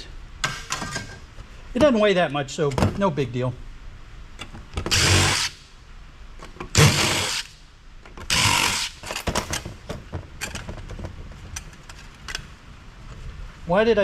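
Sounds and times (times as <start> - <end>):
power driver bursts: 4.9 - 5.6, 6.7 - 7.5, 8.3 - 9.0
metal parts clicking and knocking: 8.1 - 12.4.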